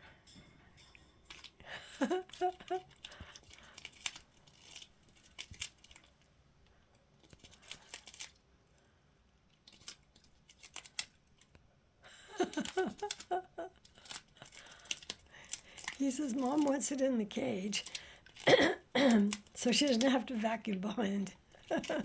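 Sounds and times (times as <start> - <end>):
bird beak clicking on toys: 1.3 - 6.2, 7.2 - 8.4, 9.5 - 11.6, 12.4 - 18.5, 19.1 - 20.8.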